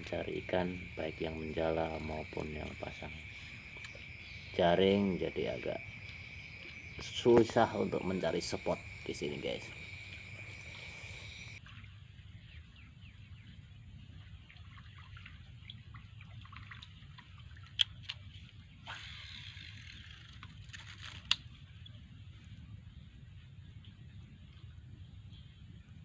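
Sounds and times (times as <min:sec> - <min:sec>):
water dripping and trickling: 0:00.0 - 0:12.0, 0:14.0 - 0:18.7
small ticks: 0:02.7 - 0:04.1, 0:17.7 - 0:22.0.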